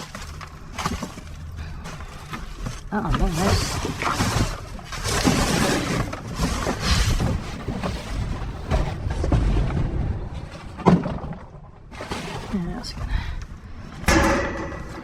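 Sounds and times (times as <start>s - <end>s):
debris scraping in metal dumpster: 3.2s - 9.5s.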